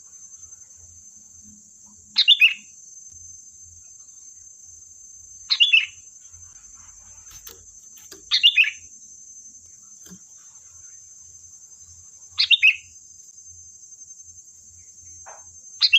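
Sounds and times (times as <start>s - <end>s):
steady high-pitched hiss: 0.0s - 15.9s
bulbul calling: 2.2s - 2.7s, 5.5s - 6.0s, 7.2s - 8.9s, 12.4s - 12.9s.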